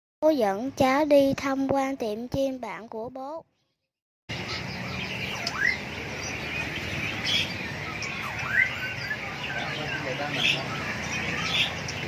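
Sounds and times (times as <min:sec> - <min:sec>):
caged birds chirping: 0:02.9 - 0:12.0
bird calls sweeping up: 0:04.3 - 0:12.0.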